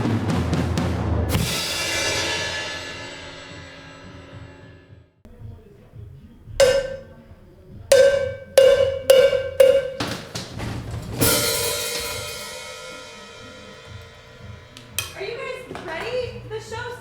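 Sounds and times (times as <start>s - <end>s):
drum fill: 6.6s - 7.3s, 7.9s - 13.1s
drum hits: 6.6s - 13.0s.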